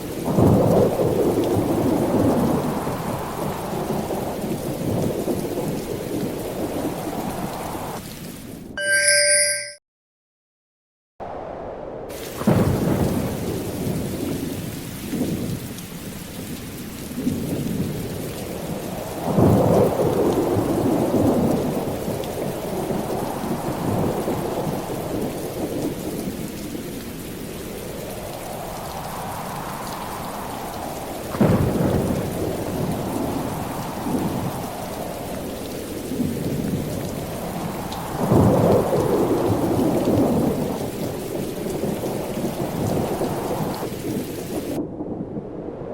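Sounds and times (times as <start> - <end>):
steady rain: 0.0 - 8.8, 12.1 - 45.9
thunder rolling: 31.3 - 34.6.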